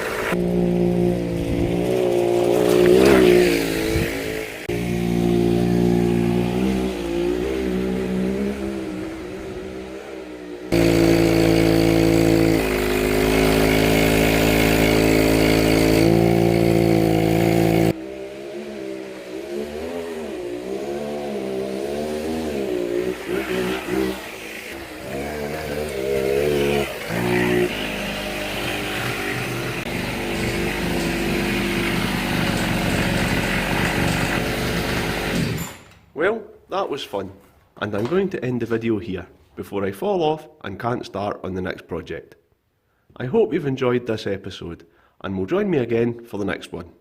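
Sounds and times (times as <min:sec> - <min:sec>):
small two-stroke engine running: 0:00.0 - 0:07.8, 0:10.7 - 0:35.6.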